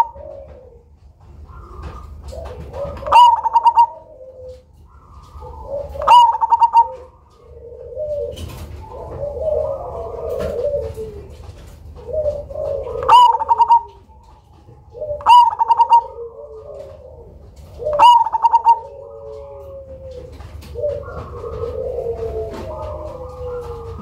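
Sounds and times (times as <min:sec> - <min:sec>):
dove singing: 0:00.0 - 0:24.0
soft dove coos: 0:00.0 - 0:24.0.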